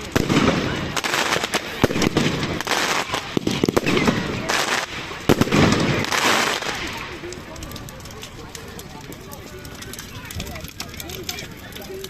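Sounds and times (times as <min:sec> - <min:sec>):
fireworks bangs: 0:00.0 - 0:09.0
fireworks crackling and hiss: 0:00.0 - 0:12.0.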